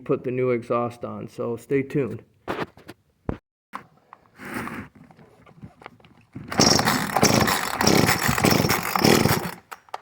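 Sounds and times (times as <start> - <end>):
scraping and rattling clatter: 5.5 - 9.8.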